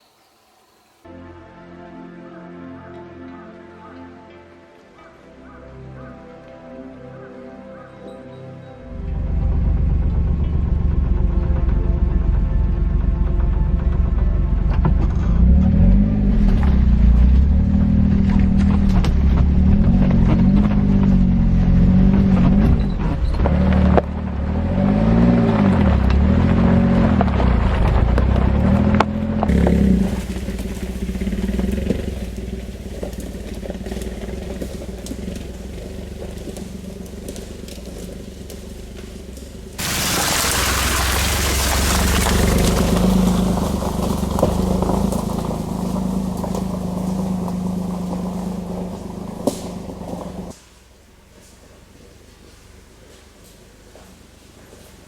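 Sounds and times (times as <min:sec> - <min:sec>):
car engine revving: 0:08.9 - 0:50.6
low rumble: 0:08.9 - 0:50.6.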